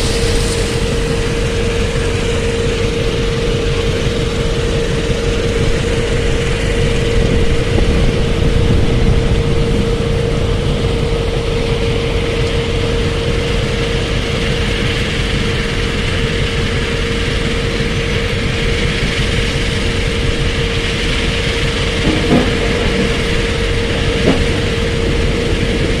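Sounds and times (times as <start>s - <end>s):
diesel engine running with whine: 0.0s - 26.0s
metal clanks: 22.0s - 25.3s.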